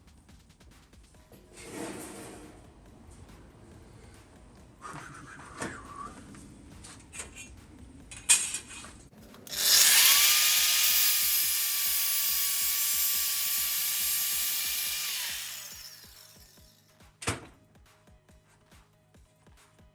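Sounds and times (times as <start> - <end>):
angle grinder cutting sheet steel: 9.3 - 16.6.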